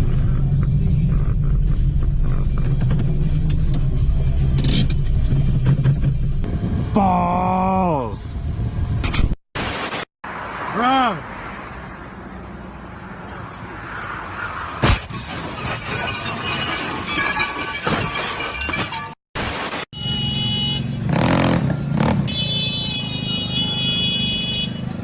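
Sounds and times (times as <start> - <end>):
road traffic: 0.0 - 25.0
car horn tone: 19.9 - 21.4, 22.2 - 25.0.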